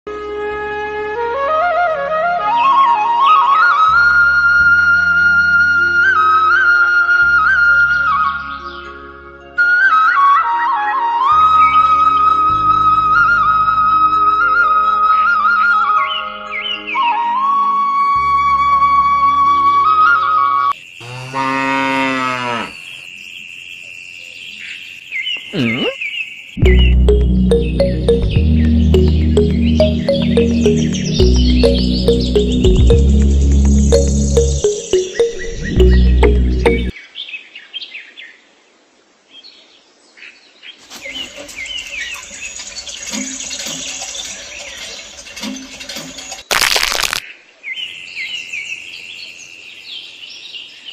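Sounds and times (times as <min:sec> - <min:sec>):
flute music: 0:00.1 - 0:20.7, 0:26.6 - 0:36.9
steady outdoor hiss: 0:20.8 - 0:28.1, 0:29.1 - 0:50.9
cow mooing: 0:21.0 - 0:22.8
small birds chirping: 0:22.8 - 0:38.4.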